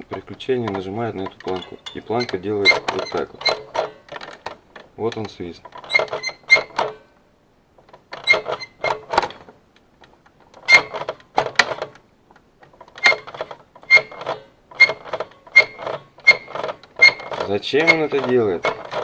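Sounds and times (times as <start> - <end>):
high squeaks: 0.0 - 4.1, 5.8 - 7.0, 8.2 - 9.4, 10.6 - 11.1, 13.0 - 19.0
document feeder clicks and rattles: 0.0 - 7.0, 7.8 - 19.0.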